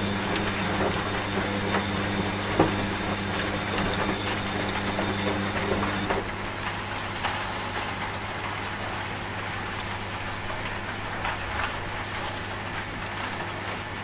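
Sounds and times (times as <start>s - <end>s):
steady rain: 0.0s - 14.0s
washing machine hum: 0.0s - 14.0s.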